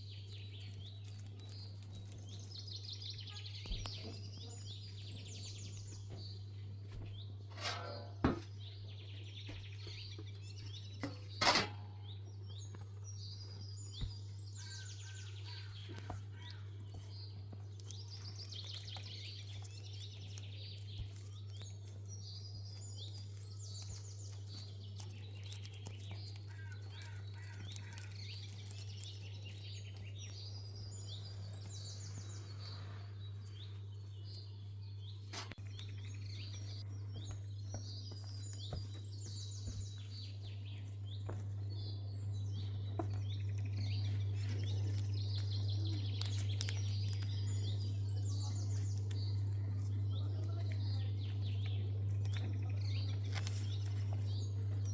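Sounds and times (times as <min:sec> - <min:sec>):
low electrical hum: 0:00.0 - 0:54.9
small birds chirping: 0:00.0 - 0:54.9.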